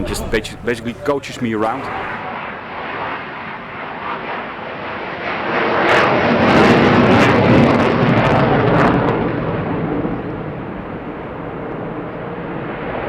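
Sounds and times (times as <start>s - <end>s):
jet engine crackles: 0.0s - 2.4s
fighter jet passing: 0.0s - 13.0s.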